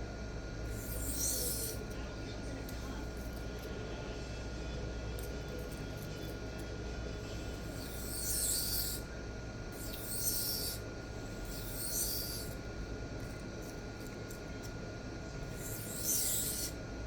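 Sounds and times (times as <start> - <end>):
knife scraping on sharpening plate: 0.8 - 1.8, 7.8 - 9.0, 9.8 - 10.8, 11.5 - 12.5, 15.6 - 16.7.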